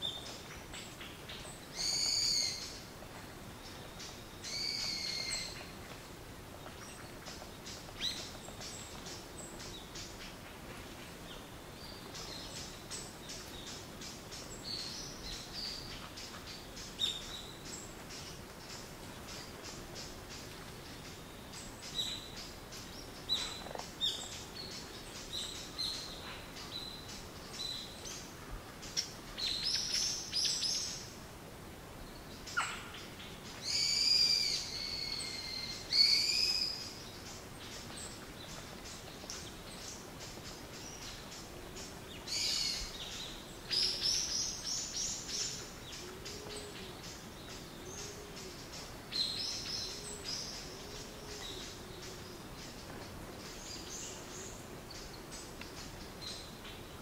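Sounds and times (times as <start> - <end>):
low bird call: 32.6 - 36.9.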